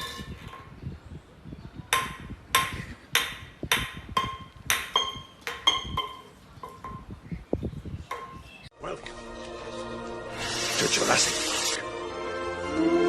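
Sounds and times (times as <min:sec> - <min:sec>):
sharp taps on ringing hard object: 0:02.0 - 0:07.1.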